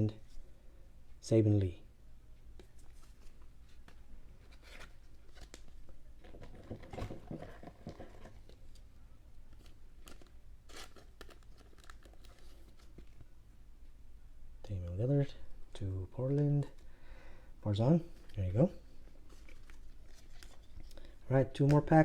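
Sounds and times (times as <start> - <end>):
trading cards rustling and crinkling: 2.6 - 13.3, 18.1 - 22.0.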